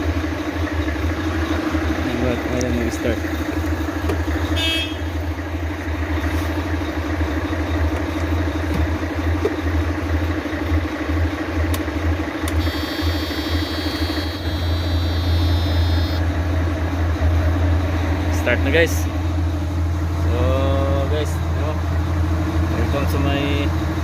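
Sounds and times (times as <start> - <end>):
truck diesel engine idling: 0.0 - 24.0
high steady tone: 12.5 - 16.2.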